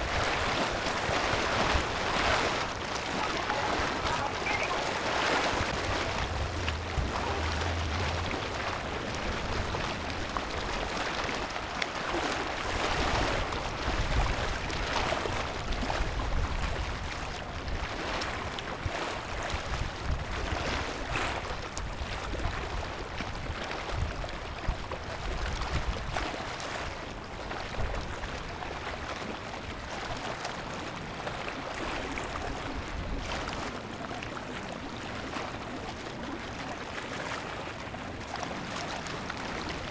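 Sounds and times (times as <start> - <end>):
waves rushing: 0.0 - 14.4
wind buffeting microphone: 0.0 - 26.3.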